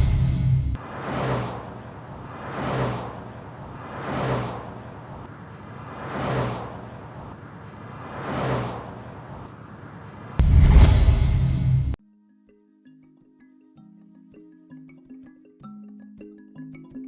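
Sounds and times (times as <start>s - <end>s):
loud engine noise: 0.0s - 3.4s
vehicles passing: 0.0s - 12.0s.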